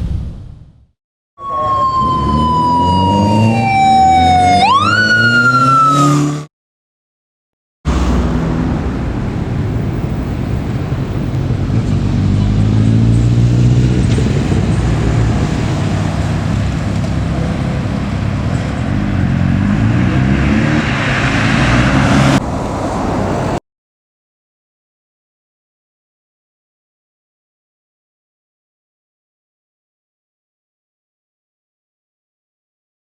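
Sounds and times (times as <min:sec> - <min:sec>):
road and wind noise: 0:01.4 - 0:06.5, 0:07.9 - 0:23.6
motorcycle engine accelerating: 0:01.9 - 0:06.5, 0:07.9 - 0:22.8.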